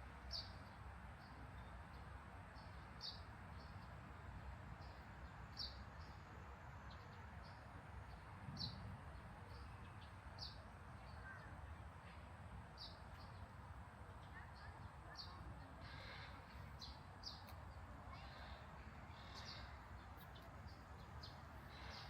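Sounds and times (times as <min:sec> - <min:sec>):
low background hum: 0:00.0 - 0:22.0
bird chirping: 0:00.3 - 0:06.2, 0:12.7 - 0:22.0.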